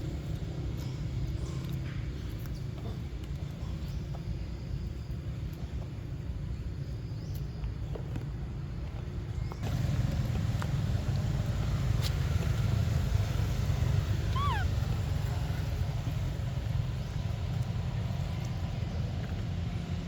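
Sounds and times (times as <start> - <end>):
high falling animal call: 13.8 - 15.6.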